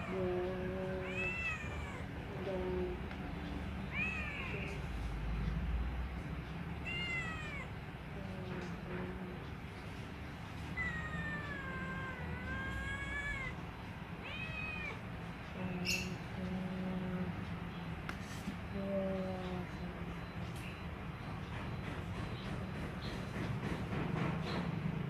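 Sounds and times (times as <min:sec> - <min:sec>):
cat meowing: 0:00.0 - 0:02.2, 0:03.8 - 0:04.9, 0:06.8 - 0:07.8, 0:10.7 - 0:15.1
steady low hum: 0:00.0 - 0:21.6.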